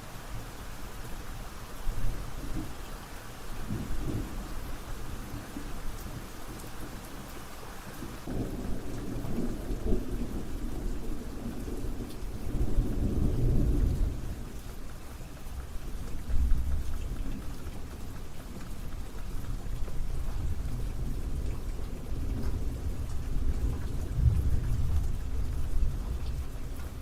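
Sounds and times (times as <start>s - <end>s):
steady rain: 0.0s - 27.0s
rolling thunder: 20.4s - 26.6s.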